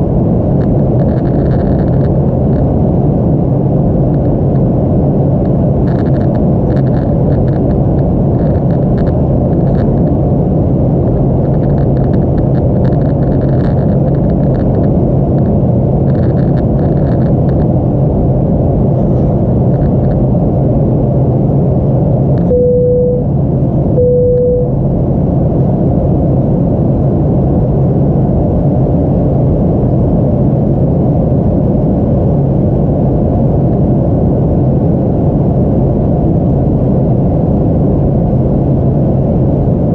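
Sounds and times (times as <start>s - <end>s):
airliner cabin rumble: 0.0s - 39.9s
short beeps: 22.4s - 23.4s, 24.0s - 24.8s.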